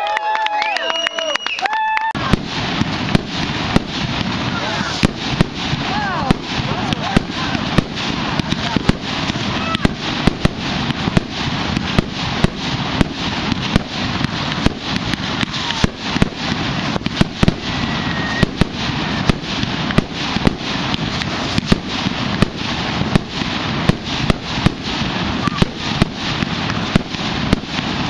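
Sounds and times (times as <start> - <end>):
fireworks bangs and pops: 0.0 - 28.0
sparks hissing and crackling: 2.2 - 28.0.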